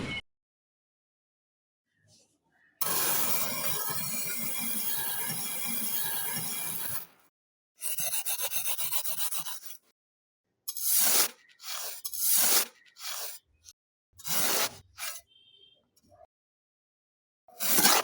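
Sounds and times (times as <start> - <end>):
sanding wood by hand: 2.8 - 7.0.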